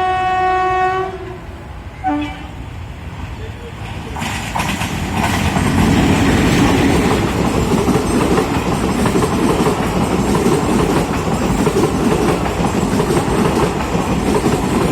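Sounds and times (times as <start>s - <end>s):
train rumbling on rails: 0.0s - 14.9s
wheels clattering over track: 3.9s - 14.9s.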